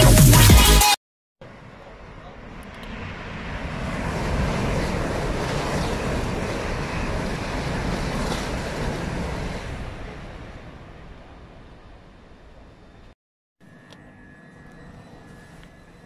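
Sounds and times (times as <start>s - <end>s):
high-speed train passing: 1.4s - 13.2s.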